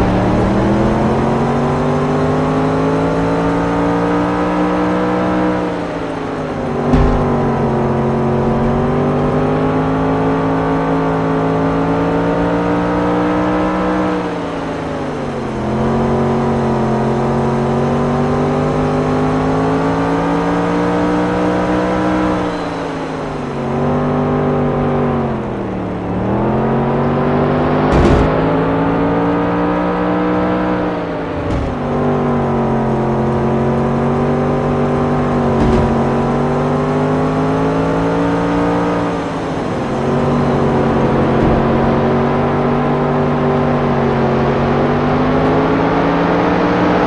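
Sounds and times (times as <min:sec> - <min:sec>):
race car engine revving: 0:00.0 - 0:47.0
sharp knocks: 0:06.8 - 0:09.8, 0:27.8 - 0:28.6, 0:35.4 - 0:36.8.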